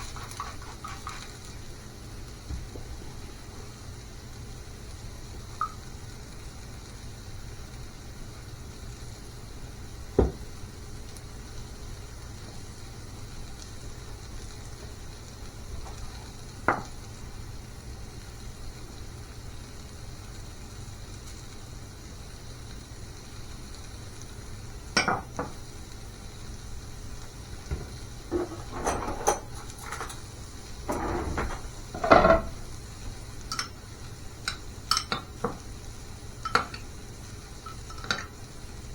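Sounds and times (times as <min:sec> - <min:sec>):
cookware clinking and clattering: 0:00.0 - 0:01.3, 0:27.7 - 0:32.7, 0:34.5 - 0:35.3, 0:36.4 - 0:36.8, 0:37.7 - 0:38.3.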